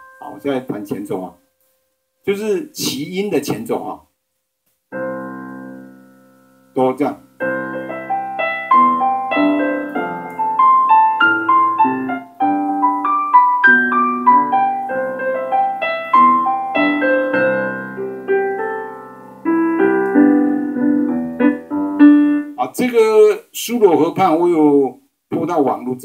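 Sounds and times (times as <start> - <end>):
piano broken chords: 0.0 - 1.3, 4.9 - 22.8.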